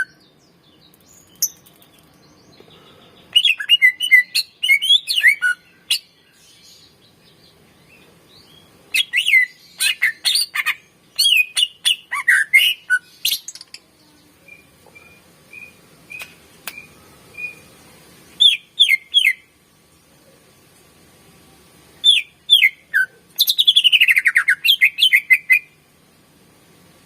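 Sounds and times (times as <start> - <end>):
bird singing whistled notes: 3.3 - 6.9, 8.0 - 13.6, 14.4 - 17.7, 18.4 - 19.5, 22.0 - 25.8.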